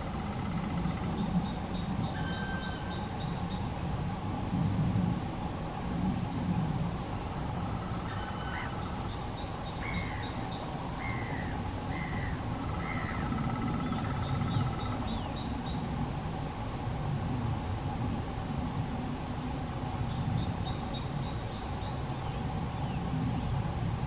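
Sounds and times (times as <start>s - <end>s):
low steady rumble: 0.0s - 24.0s
rising-and-falling bird calls: 0.3s - 3.6s, 7.8s - 15.7s.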